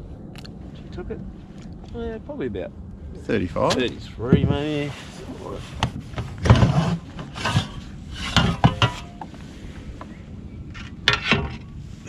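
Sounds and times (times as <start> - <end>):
knocks and scrapes on plastic kayak: 4.4 - 9.4.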